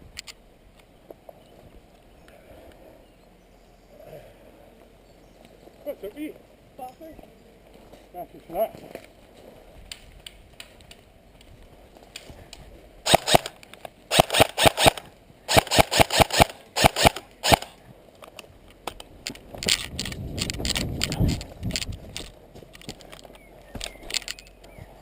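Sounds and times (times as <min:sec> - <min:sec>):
airsoft rifle single shots: 0:13.1 - 0:17.8.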